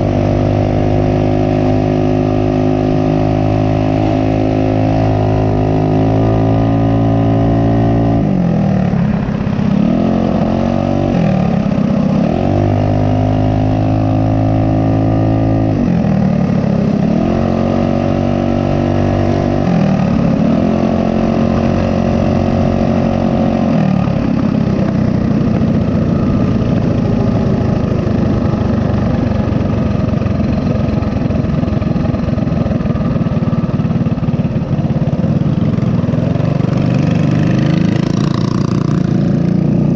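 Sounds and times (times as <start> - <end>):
mini bike engine running: 0.0 - 39.9.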